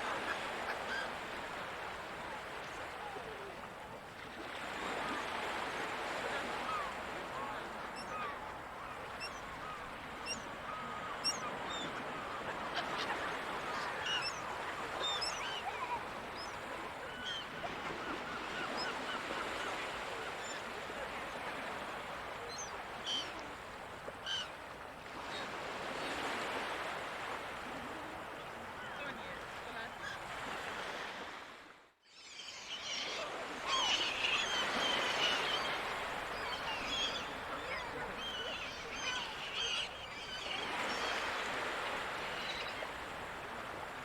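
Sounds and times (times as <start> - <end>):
surf washing: 0.0 - 31.8, 32.7 - 44.0
gulls calling: 4.8 - 20.6, 32.2 - 43.8.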